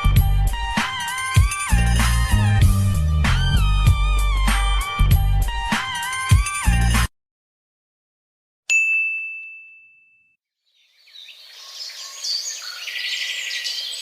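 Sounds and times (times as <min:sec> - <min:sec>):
bright bell ding: 0:08.7 - 0:10.4
birds chirping: 0:10.6 - 0:14.0.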